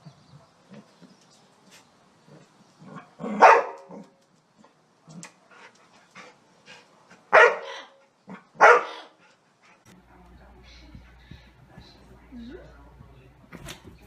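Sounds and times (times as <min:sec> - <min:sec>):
dog barking: 0:03.3 - 0:04.0, 0:07.3 - 0:09.2
faint clicks and rustles: 0:03.8 - 0:07.0.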